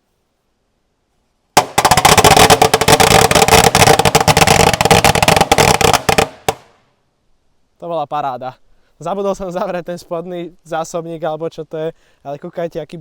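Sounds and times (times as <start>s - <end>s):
firecrackers banging: 1.6s - 6.7s.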